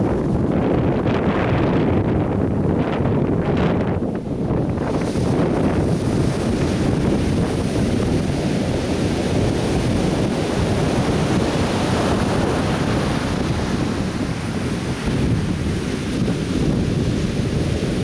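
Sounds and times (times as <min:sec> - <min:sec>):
wind buffeting microphone: 0:00.0 - 0:18.0
surf breaking on beach: 0:04.6 - 0:18.0.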